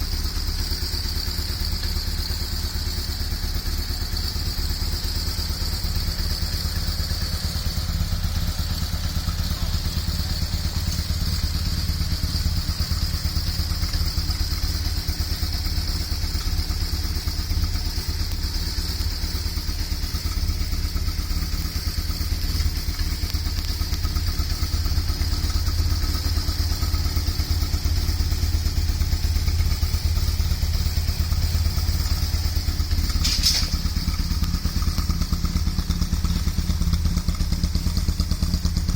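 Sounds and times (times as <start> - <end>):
motorcycle engine idling: 0.0 - 38.9
brief click: 33.2 - 33.8.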